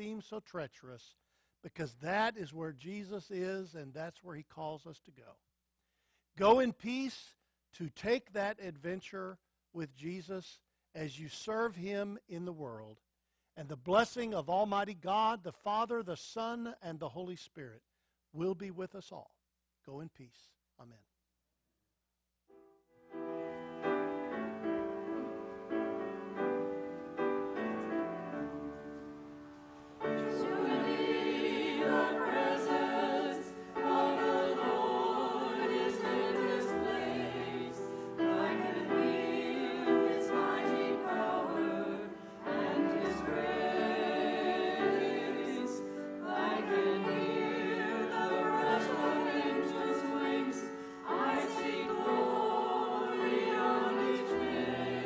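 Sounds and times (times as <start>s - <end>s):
piano chords: 22.9s - 50.5s
choir singing: 23.4s - 55.0s.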